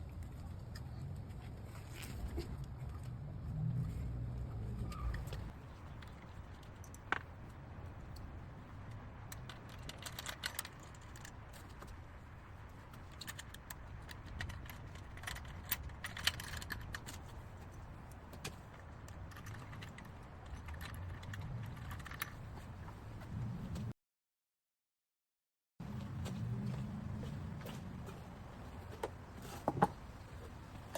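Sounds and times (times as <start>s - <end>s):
tools and parts clicking: 5.1s - 12.0s, 12.9s - 22.5s.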